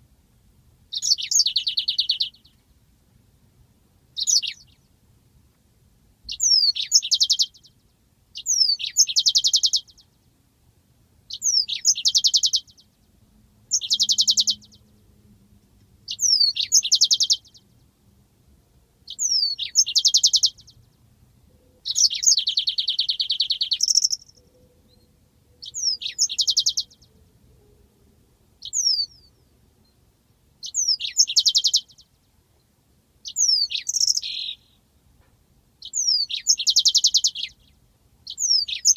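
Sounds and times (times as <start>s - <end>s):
canary singing trills: 0.9s - 2.6s, 4.2s - 4.9s, 6.2s - 10.3s, 11.3s - 13.1s, 13.7s - 15.1s, 16.0s - 18.0s, 19.0s - 27.8s, 28.6s - 32.2s, 33.2s - 34.8s, 35.8s - 38.9s.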